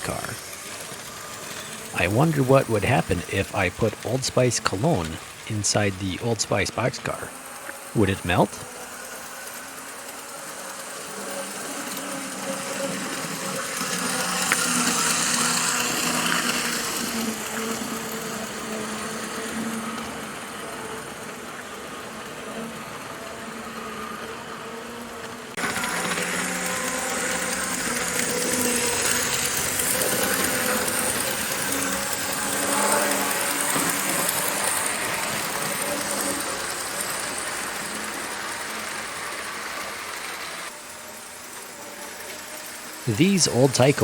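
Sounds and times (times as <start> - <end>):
model train motor whining: 0.3 - 1.9, 8.7 - 43.0
wheels clattering on rails: 25.3 - 40.7.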